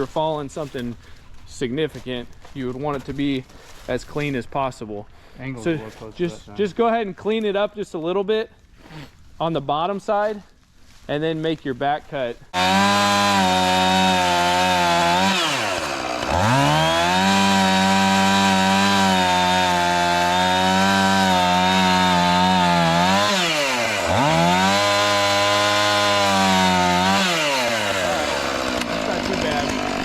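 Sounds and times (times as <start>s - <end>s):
chainsaw cutting wood: 12.5s - 30.0s.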